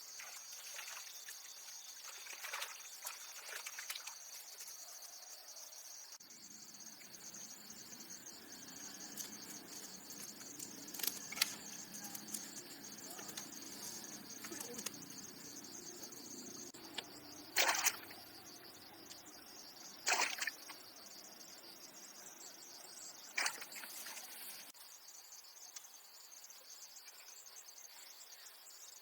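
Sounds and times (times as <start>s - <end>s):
high-pitched insect chorus: 0.0s - 29.0s.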